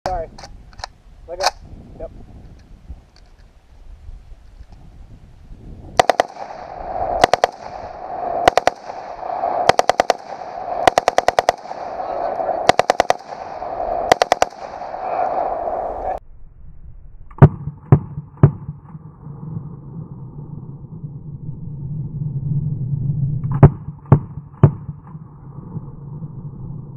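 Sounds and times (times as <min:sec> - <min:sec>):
rifle firing bursts: 0:06.0 - 0:15.0
single gunshots: 0:06.0 - 0:15.5
steady hum: 0:06.0 - 0:18.2.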